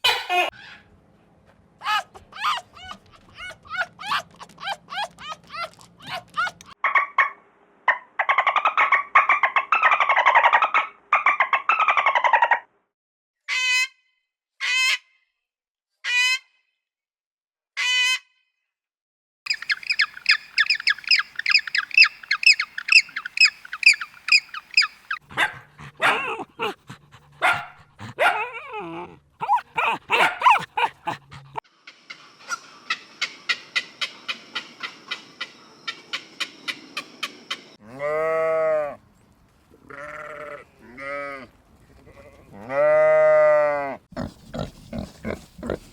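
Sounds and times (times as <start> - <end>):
animal calls: 1.8 - 12.6, 19.5 - 38.2, 44.2 - 45.9
rapid repeated chirping: 19.5 - 25.2, 29.4 - 31.2.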